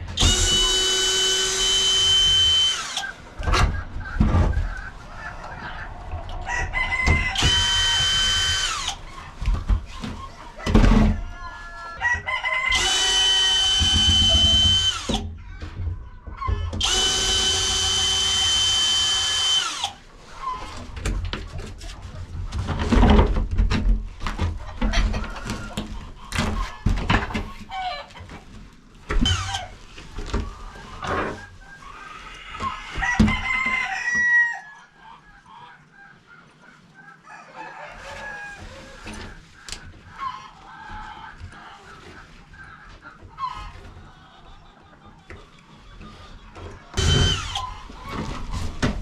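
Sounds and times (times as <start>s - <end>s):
chickens clucking: 0.0s - 16.8s, 19.8s - 49.0s
knocks and rustles: 3.4s - 5.0s, 9.2s - 11.2s, 20.7s - 31.5s, 46.0s - 49.0s
rooster crowing: 6.3s - 8.9s, 10.6s - 14.6s, 32.6s - 34.8s, 37.2s - 39.0s.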